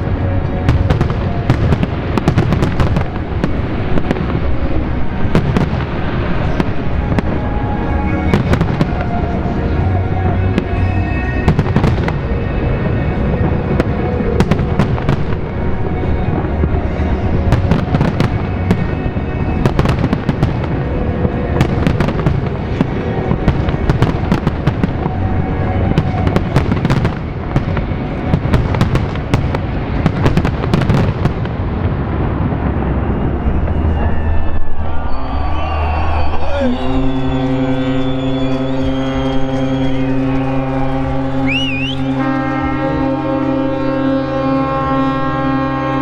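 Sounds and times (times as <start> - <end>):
fireworks bangs and crackling: 0.0 - 34.4
music playing: 0.0 - 46.0.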